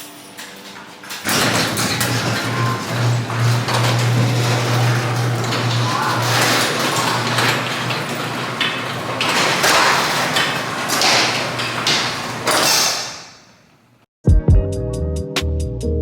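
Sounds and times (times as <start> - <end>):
music with a strong beat: 14.2 - 16.0.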